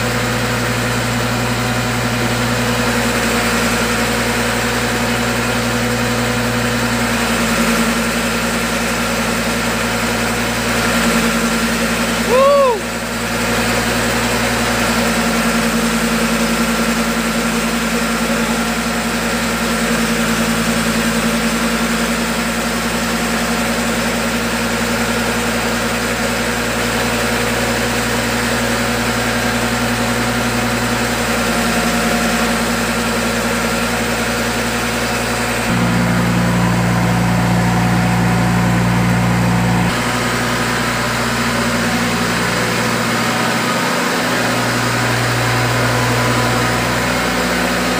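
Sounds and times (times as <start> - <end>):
machine engine humming: 26.6 - 47.9.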